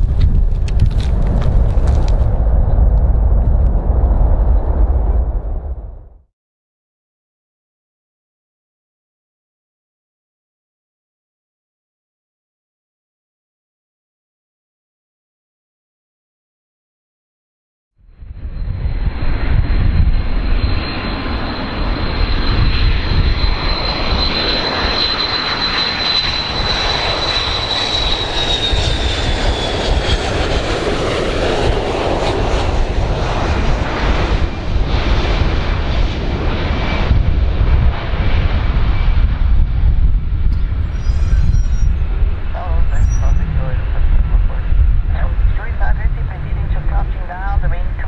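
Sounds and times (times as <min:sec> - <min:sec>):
airplane engines rumbling with whine: 0:00.0 - 0:06.2, 0:18.0 - 0:48.0.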